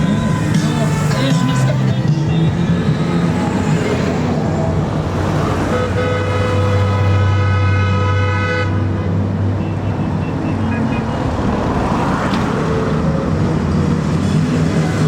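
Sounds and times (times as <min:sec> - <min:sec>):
motorcycle engines passing: 0:00.0 - 0:07.8, 0:08.7 - 0:15.0
long horn-like tone: 0:05.7 - 0:08.9.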